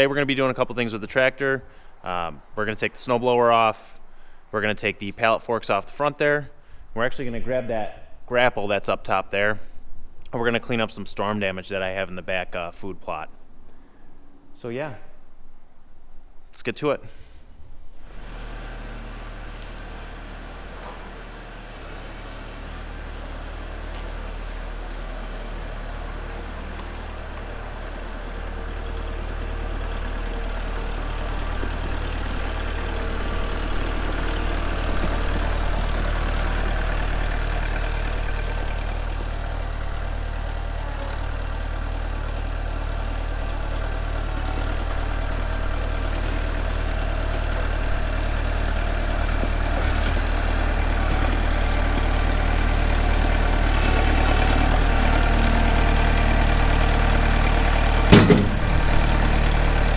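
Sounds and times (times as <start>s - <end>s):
diesel tractor engine idling: 17.9s - 59.9s.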